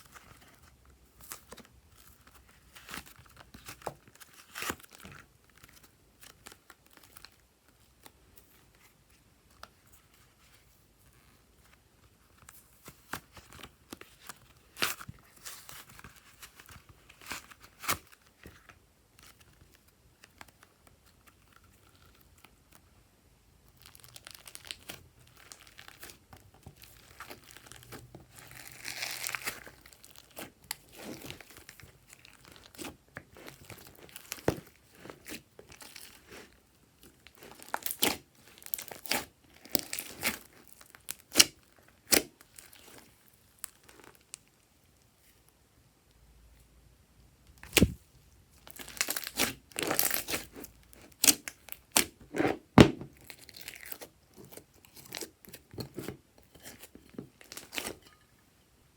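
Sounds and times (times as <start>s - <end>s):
slime crackling and popping: 23.7s - 26.2s, 26.8s - 44.5s, 47.6s - 48.0s, 48.6s - 58.2s
slime squished by hand: 26.8s - 44.3s, 47.6s - 58.2s.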